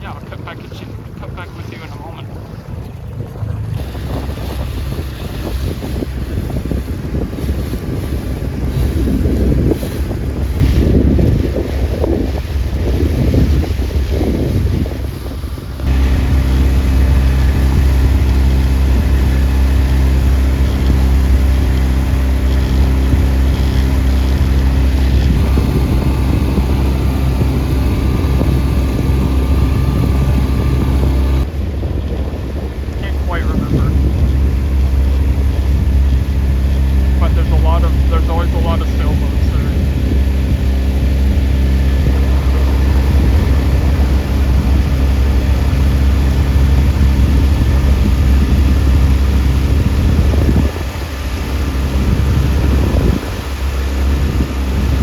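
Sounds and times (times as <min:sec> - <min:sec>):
boat engine rumble: 0:00.0 - 0:55.0
water rushing past boat: 0:00.0 - 0:55.0
wind buffeting microphone: 0:00.0 - 0:55.0.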